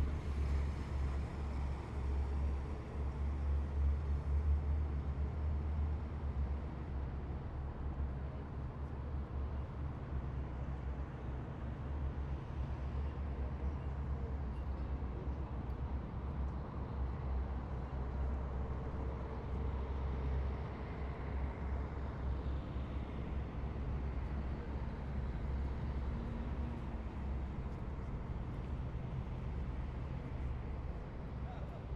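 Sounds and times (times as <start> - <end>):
heavy vehicle engines rumbling: 12.3 - 31.9.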